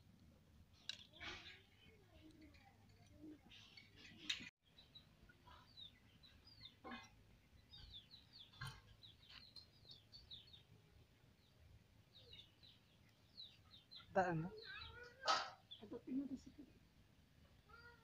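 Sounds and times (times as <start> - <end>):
faint bird chirps: 3.0 - 16.8.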